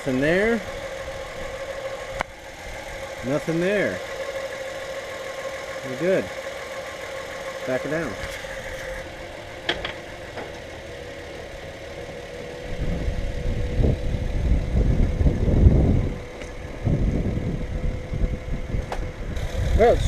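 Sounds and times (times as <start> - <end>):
car engine running: 0.0 - 20.0
uneven low rumble: 12.6 - 20.0.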